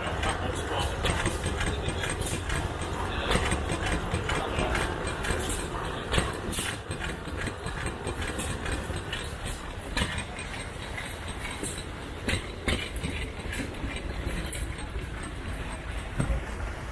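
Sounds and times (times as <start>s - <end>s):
oil engine running slowly: 0.0s - 16.9s.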